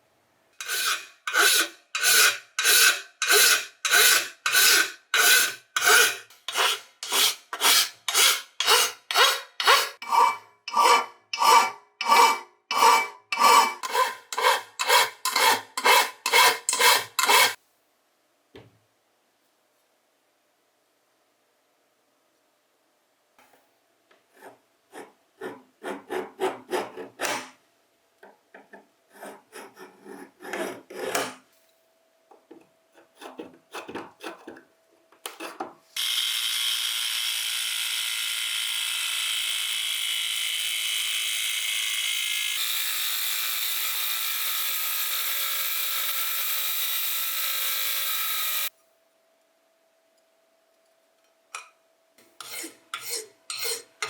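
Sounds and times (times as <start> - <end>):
scrubbing on rusted metal: 0.6 - 17.6.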